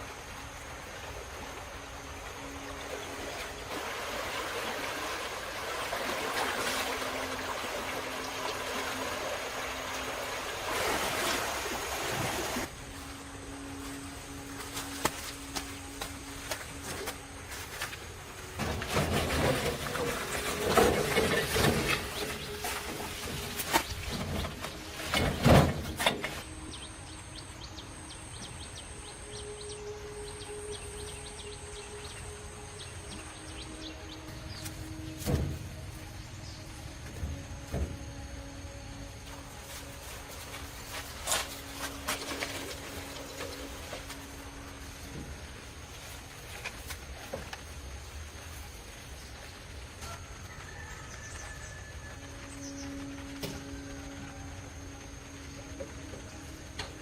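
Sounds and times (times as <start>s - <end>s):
running water splashing: 0.0s - 12.8s
steady background noise: 0.0s - 57.0s.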